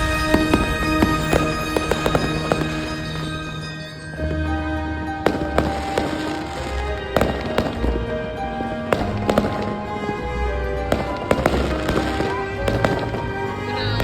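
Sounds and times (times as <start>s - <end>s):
fireworks banging: 0.0s - 14.0s.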